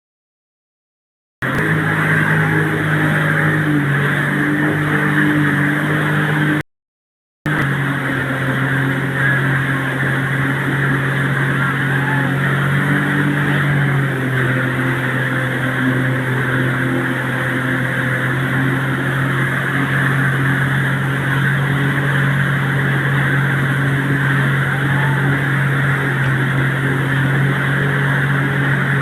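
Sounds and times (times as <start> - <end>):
engine running with low hum: 1.4 - 6.6, 7.5 - 29.0
loud rushing noise: 1.4 - 6.6.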